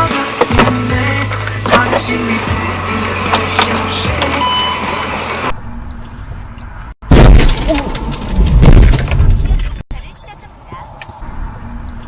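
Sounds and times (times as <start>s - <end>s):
car crash impact: 7.0s - 9.7s
heavy crunching and rumbling: 7.0s - 9.8s.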